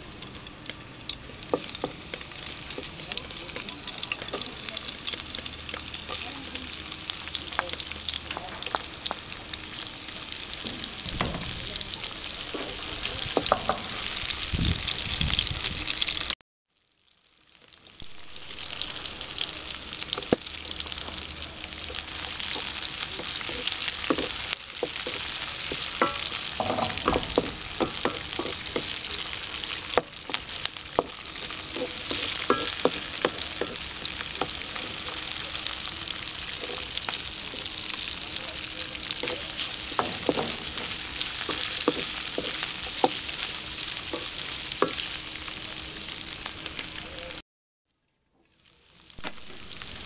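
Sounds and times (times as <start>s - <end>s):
vegetables sizzling in hot oil: 0.0s - 47.4s, 48.3s - 50.0s
spatula scraping a wok: 22.4s - 35.2s, 39.2s - 45.1s.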